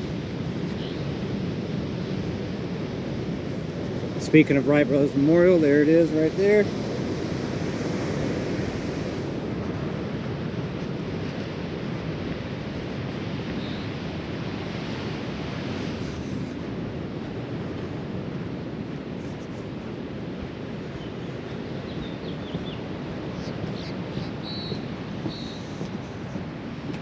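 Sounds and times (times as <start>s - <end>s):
ocean surf: 0.0s - 27.0s
wind buffeting microphone: 0.0s - 27.0s.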